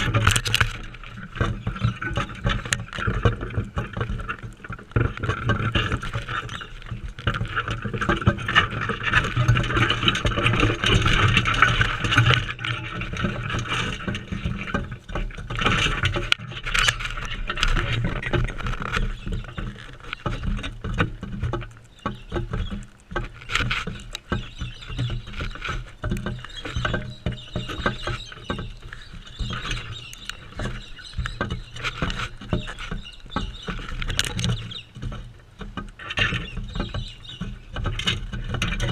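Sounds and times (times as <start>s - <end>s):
birds pecking and cracking seeds: 0.0s - 38.9s.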